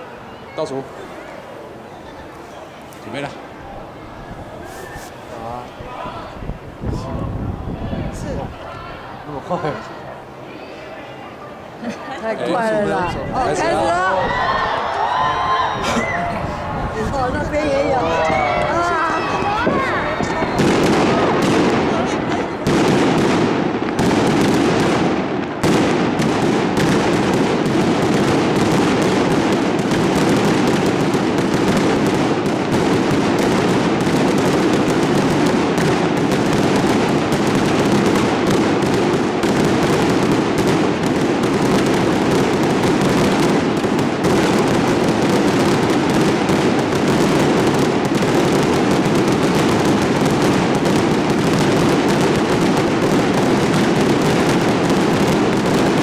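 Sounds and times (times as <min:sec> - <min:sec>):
fireworks barrage: 0:12.3 - 0:56.0.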